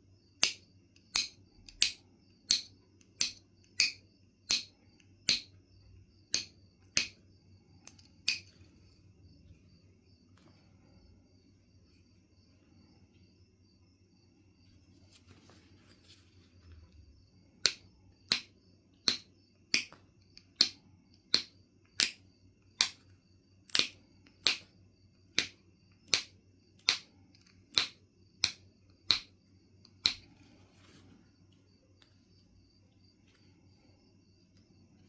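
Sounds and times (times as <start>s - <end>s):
stone being knapped: 17.6s - 20.0s, 20.6s - 22.2s, 23.7s - 24.7s, 27.7s - 29.3s.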